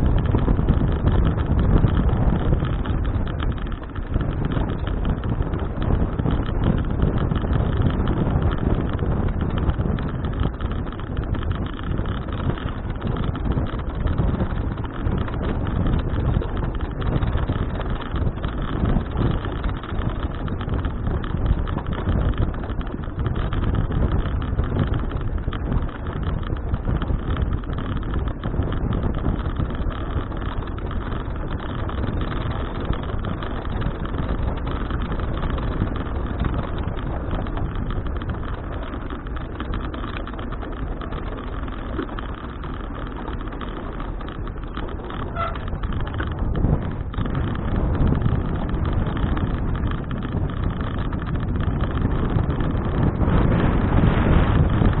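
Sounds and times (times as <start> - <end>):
bicycle tyre road noise: 0.0 - 55.0
wind rumbling on microphone: 0.0 - 55.0.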